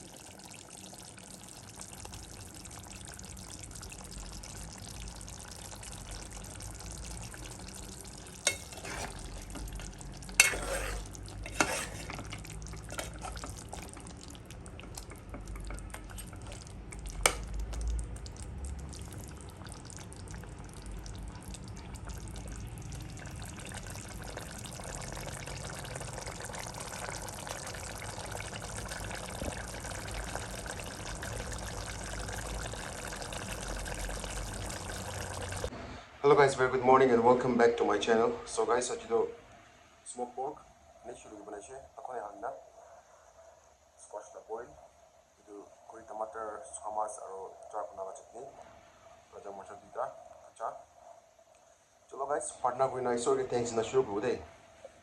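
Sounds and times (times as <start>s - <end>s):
food sizzling and bubbling in pot: 0.0s - 35.9s, 36.7s - 55.0s
utensil clinking against pot: 8.4s - 9.2s, 10.3s - 13.6s.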